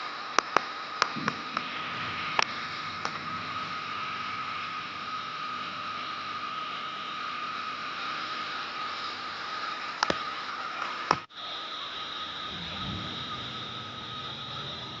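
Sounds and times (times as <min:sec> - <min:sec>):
thin steady high tone: 0:00.9 - 0:15.0
storm water rushing: 0:01.1 - 0:10.1, 0:12.0 - 0:15.0.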